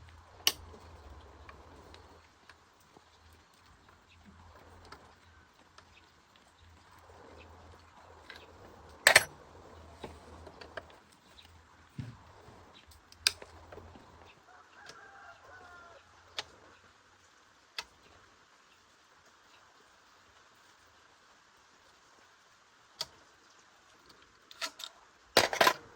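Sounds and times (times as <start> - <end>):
tools and parts clicking: 9.0 - 9.3, 24.5 - 25.9.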